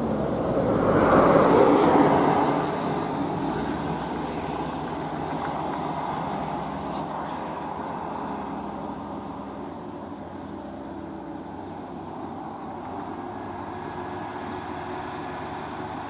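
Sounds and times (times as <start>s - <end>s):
heavy truck driving past: 0.0s - 9.8s
traffic drone: 0.0s - 16.0s.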